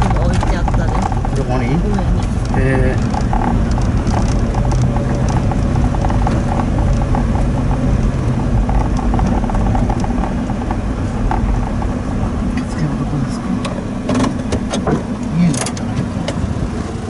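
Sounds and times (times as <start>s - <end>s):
small rattling clicks: 0.0s - 12.7s
truck engine and road rumble: 0.0s - 17.0s.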